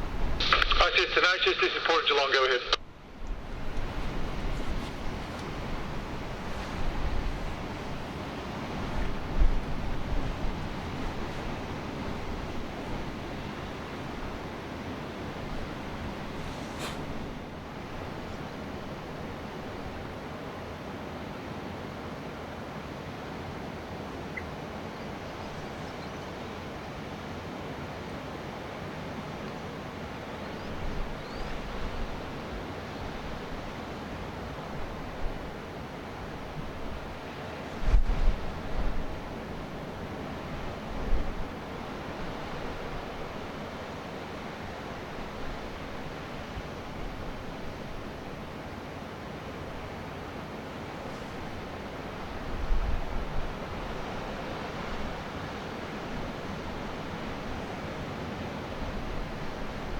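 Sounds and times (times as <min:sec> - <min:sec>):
surf hissing: 0:00.0 - 0:20.1
sea surf: 0:00.0 - 0:24.8, 0:26.3 - 0:59.9
wind: 0:00.0 - 0:59.9
wind buffeting microphone: 0:02.9 - 0:14.5.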